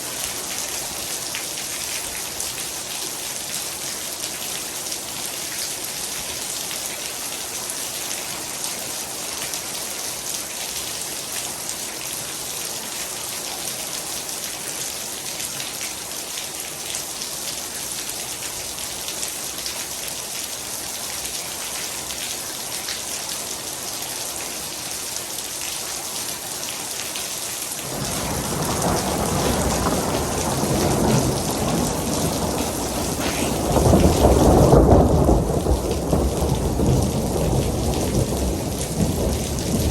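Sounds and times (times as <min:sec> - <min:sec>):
heavy rain falling: 0:00.0 - 0:39.9
thunder rumble: 0:27.8 - 0:39.9.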